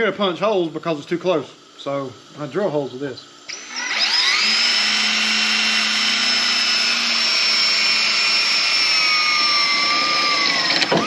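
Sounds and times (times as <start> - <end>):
drill drilling through sheet metal: 3.5 - 11.0.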